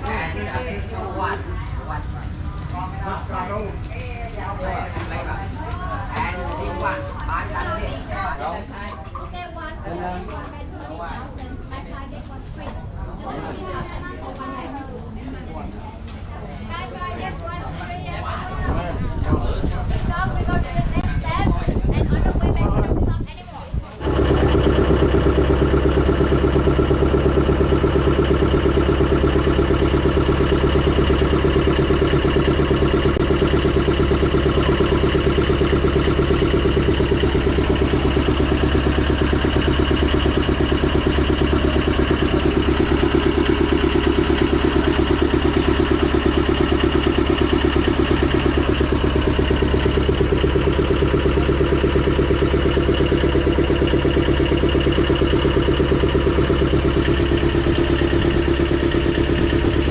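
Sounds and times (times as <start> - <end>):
boat engine running loudly: 24.0 - 59.9.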